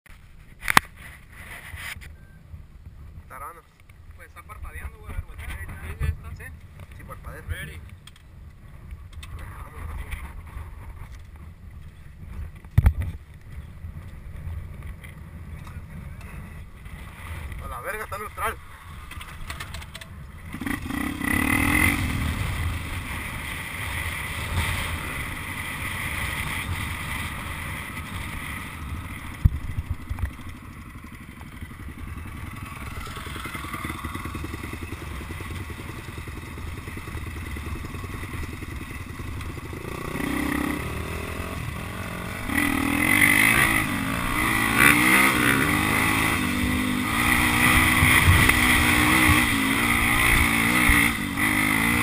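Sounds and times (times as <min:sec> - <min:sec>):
dirt bike engine revving: 0:16.8 - 0:52.0.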